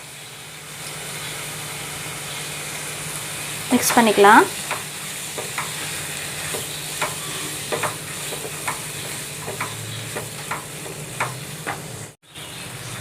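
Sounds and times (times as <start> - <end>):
prawns sizzling in a pan: 0.0 - 13.0
spatula scraping a pan: 4.7 - 12.0.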